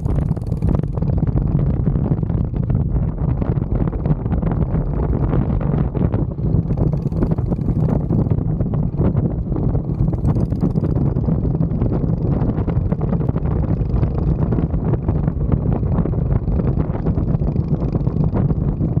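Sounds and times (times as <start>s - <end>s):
mini bike engine running: 0.0s - 19.0s
wind buffeting microphone: 0.0s - 19.0s.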